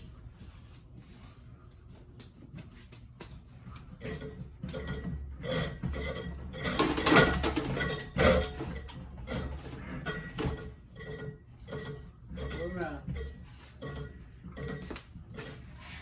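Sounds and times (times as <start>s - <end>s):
metal fan parts clattering: 2.6s - 16.0s.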